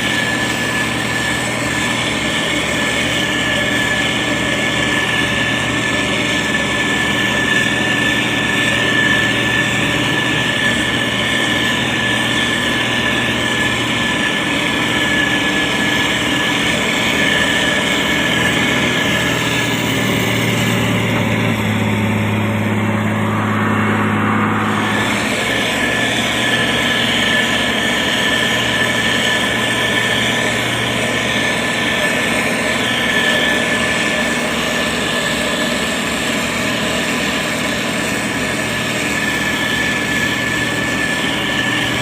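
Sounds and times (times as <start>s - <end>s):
diesel engine running: 0.0s - 42.0s
high whine: 0.0s - 42.0s.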